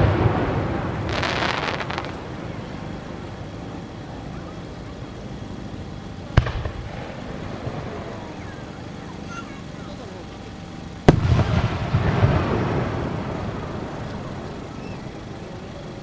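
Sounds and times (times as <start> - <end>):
firework shell burst rumble: 0.0 - 2.3, 6.4 - 7.9, 11.0 - 14.4
crackling firework stars: 0.0 - 3.8, 4.7 - 16.0
sharp firework launch bang: 6.4 - 7.0, 11.1 - 12.8.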